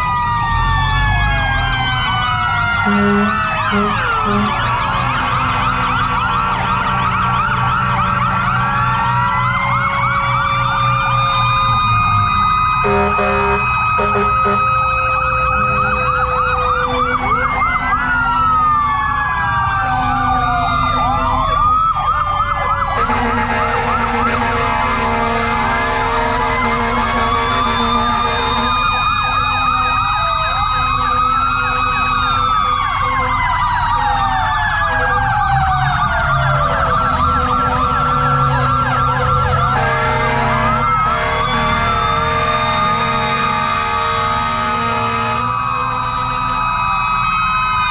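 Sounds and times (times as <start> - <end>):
sirens wailing: 0.0 - 47.9
sirens yelping fast: 0.0 - 47.9
steady low siren tones: 0.0 - 47.9.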